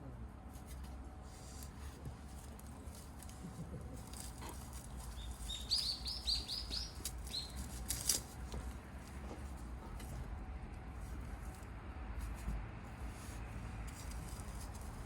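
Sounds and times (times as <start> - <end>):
bird calling: 5.2 - 7.6.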